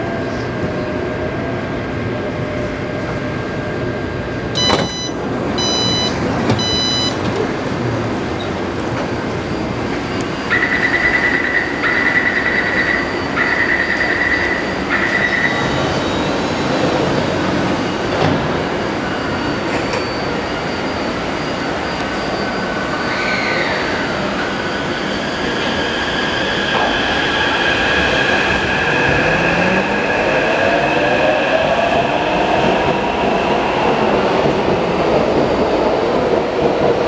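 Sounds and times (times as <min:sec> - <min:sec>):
train humming: 0:00.0 - 0:37.0
high-pitched door warning beeps: 0:04.6 - 0:07.2.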